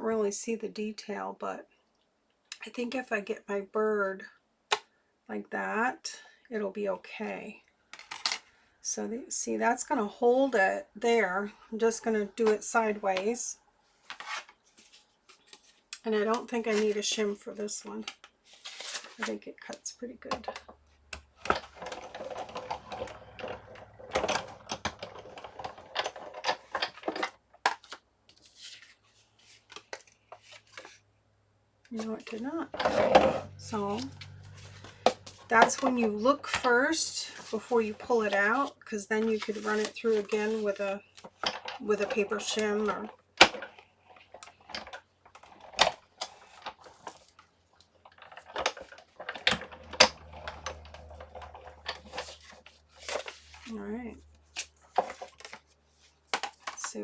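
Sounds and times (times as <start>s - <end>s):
plastic and metal plates clicking: 20.3s - 28.0s, 41.1s - 53.4s.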